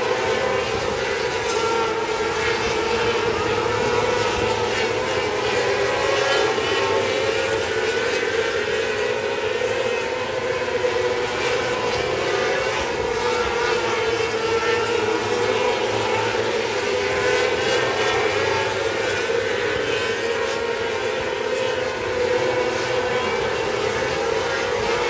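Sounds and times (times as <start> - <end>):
racing engine running: 0.0 - 25.0.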